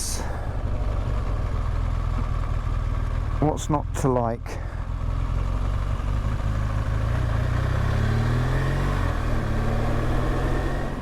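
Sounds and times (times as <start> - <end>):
motorcycle engine running: 0.0 - 8.3.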